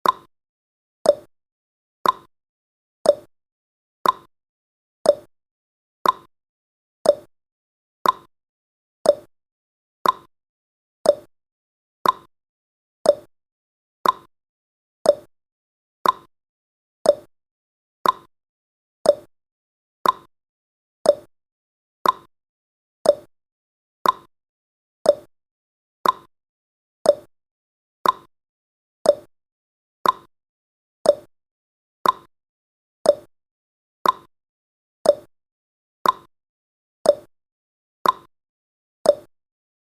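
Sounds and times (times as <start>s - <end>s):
countdown timer ticking: 5.1s - 5.3s, 7.1s - 7.3s, 9.1s - 9.3s, 10.0s - 10.3s, 11.1s - 11.3s, 13.1s - 13.3s, 15.1s - 15.3s, 17.1s - 17.3s, 18.0s - 18.3s, 19.1s - 19.3s, 21.1s - 21.3s, 23.0s - 23.3s, 25.1s - 25.3s, 26.0s - 26.3s, 27.1s - 27.3s, 28.0s - 28.3s, 29.1s - 29.3s, 30.0s - 30.3s, 31.1s - 31.3s, 32.0s - 32.3s, 33.1s - 33.3s, 34.0s - 34.3s, 35.1s - 35.3s, 36.0s - 36.3s, 37.1s - 37.3s, 38.0s - 38.3s, 39.1s - 39.3s.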